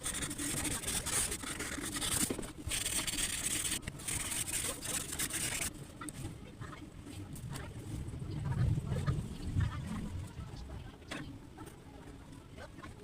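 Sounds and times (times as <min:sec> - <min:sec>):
drawing tool scratching paper: 0:00.0 - 0:05.7
low background rumble: 0:00.0 - 0:12.9.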